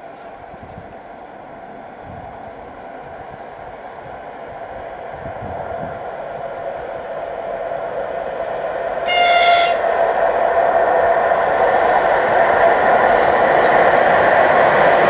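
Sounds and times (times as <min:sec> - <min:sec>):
train approaching: 0:00.0 - 0:15.0
locomotive whistle blast: 0:09.0 - 0:09.8.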